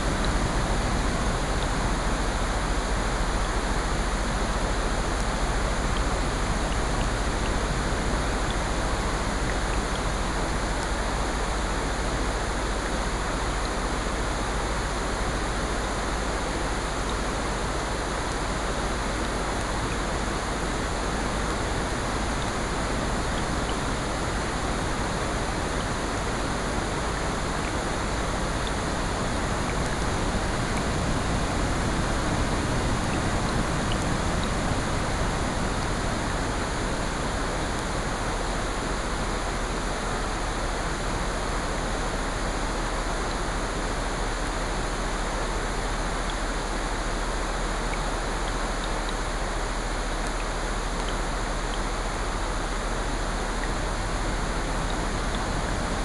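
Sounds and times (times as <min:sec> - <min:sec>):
steady rain: 0:00.0 - 0:56.0
ocean surf: 0:19.8 - 0:46.1, 0:52.3 - 0:56.0.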